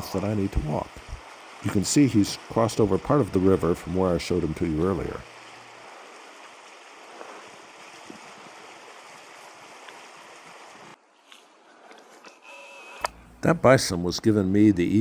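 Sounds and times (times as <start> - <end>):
water rushing: 0.0 - 11.7.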